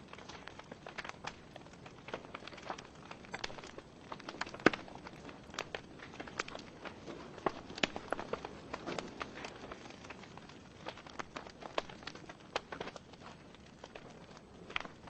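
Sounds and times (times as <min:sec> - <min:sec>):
logs crackling and popping: 0:00.0 - 0:15.0
soft hiss of flame: 0:00.0 - 0:15.0.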